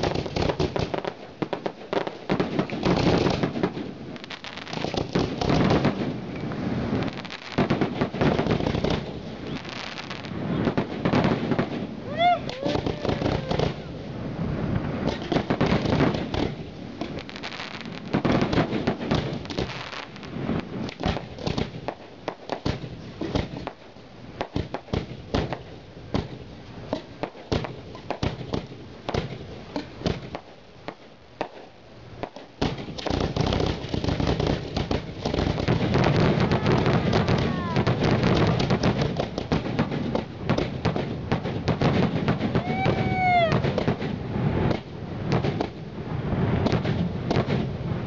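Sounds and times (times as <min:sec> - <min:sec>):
fireworks bursts and pops: 0:00.0 - 0:48.0.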